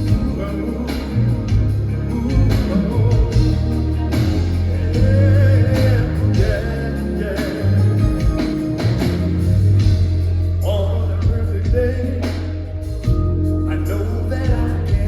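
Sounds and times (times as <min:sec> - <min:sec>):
person singing: 0:00.0 - 0:09.2
live band with bass and drums: 0:00.0 - 0:15.0.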